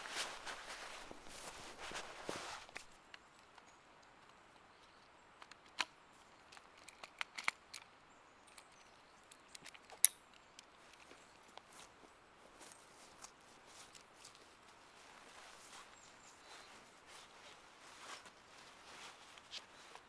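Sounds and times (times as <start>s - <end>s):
footsteps rustling: 0.0s - 3.0s, 11.7s - 20.0s.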